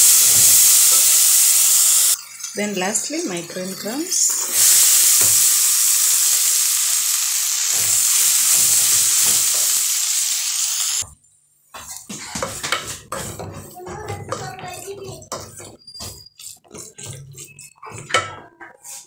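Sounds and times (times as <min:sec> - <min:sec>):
beans sizzling in hot oil: 0:00.0 - 0:02.6, 0:03.6 - 0:11.0
spoon knocking and stirring: 0:11.8 - 0:18.7
wooden spoon scraping: 0:15.5 - 0:18.1.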